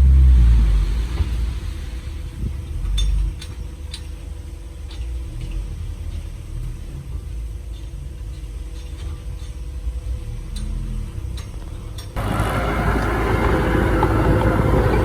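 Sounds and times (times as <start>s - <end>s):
heavy machinery diesel engine rumble: 0.0s - 15.0s.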